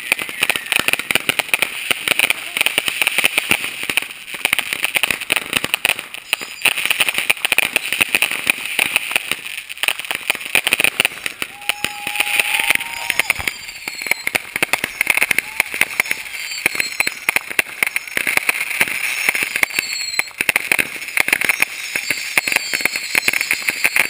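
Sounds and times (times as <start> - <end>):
fireworks crackling and banging: 0.0 - 24.0.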